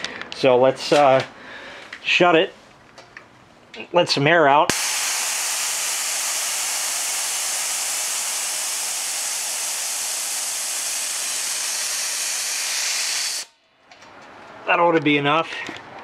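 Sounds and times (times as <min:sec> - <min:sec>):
compressed air hissing: 0:04.7 - 0:13.5.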